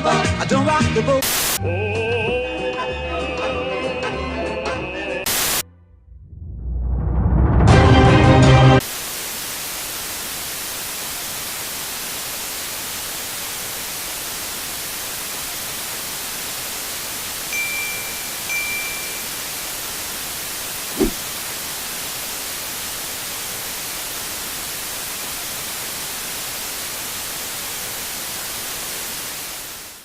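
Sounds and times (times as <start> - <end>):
static hiss: 1.2 - 1.6, 5.3 - 5.6, 8.8 - 30.0
faint high beeps: 17.5 - 19.4.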